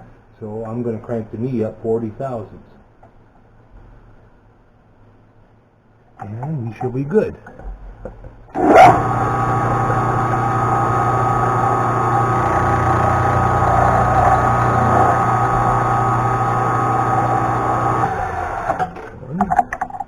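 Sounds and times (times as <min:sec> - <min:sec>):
milling machine whining: 0:08.6 - 0:19.2.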